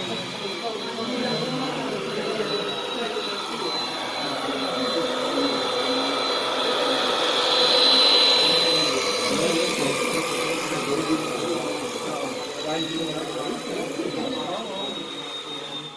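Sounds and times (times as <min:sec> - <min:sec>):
electric motor whining: 0:00.0 - 0:15.9.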